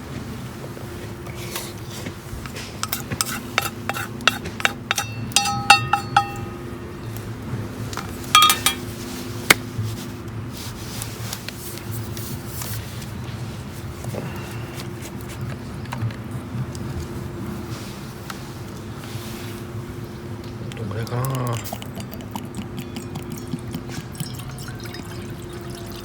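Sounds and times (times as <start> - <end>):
metal cookware clicking and clinking: 2.8 - 6.8, 8.0 - 8.9
low hum: 4.6 - 9.0.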